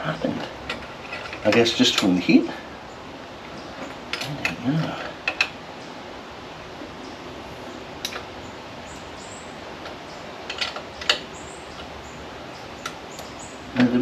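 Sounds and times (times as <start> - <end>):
steady low hiss: 0.0 - 14.0
spanner clinking on metal: 0.4 - 2.2.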